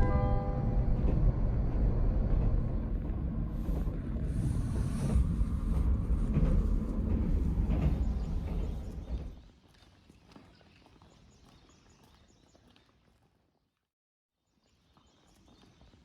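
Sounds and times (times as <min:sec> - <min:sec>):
wind buffeting microphone: 0:00.0 - 0:09.4
train rumble: 0:00.0 - 0:09.5.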